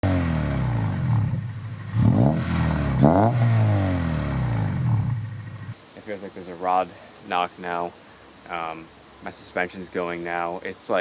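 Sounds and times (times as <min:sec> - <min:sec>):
car engine revving: 0:00.0 - 0:05.8.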